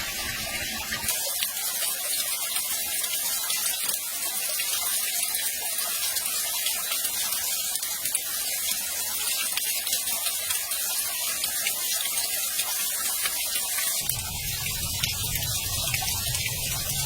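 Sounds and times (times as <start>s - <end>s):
falling water rushing: 0.0s - 3.6s, 11.4s - 17.0s.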